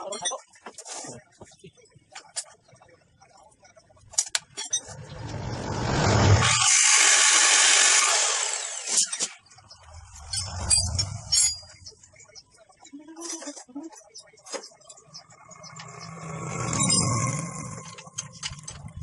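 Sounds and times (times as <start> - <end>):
power tool running: 6.0 - 9.1
metal parts clicking and knocking: 10.0 - 12.0, 13.3 - 19.0.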